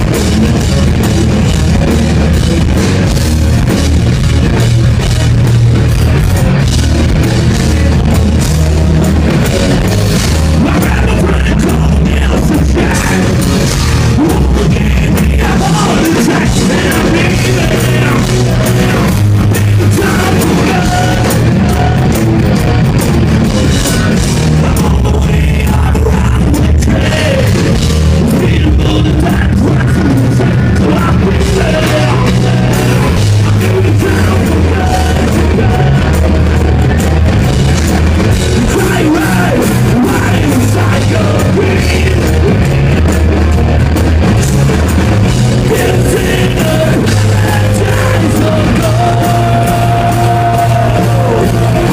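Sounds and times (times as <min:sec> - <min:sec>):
hard rock band playing live: 0:00.0 - 0:51.9
person singing: 0:10.4 - 0:22.3, 0:23.7 - 0:37.0, 0:38.6 - 0:43.1, 0:45.6 - 0:51.9.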